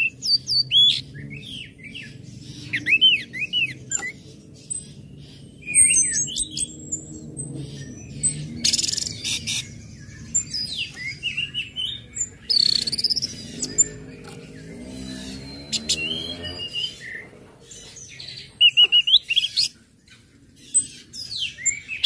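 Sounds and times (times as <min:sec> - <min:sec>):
bird singing chirps and whistles: 0:00.0 - 0:22.0.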